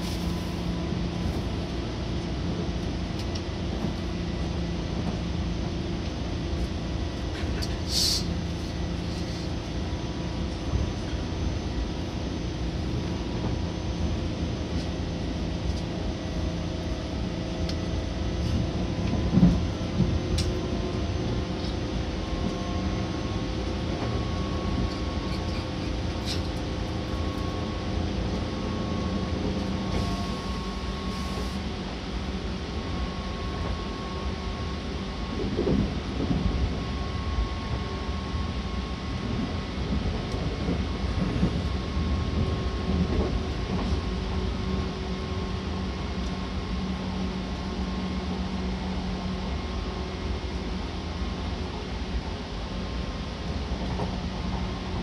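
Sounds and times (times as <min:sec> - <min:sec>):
wheels rumbling on rail: 0:00.0 - 0:55.0
brief hiss: 0:07.9 - 0:08.3.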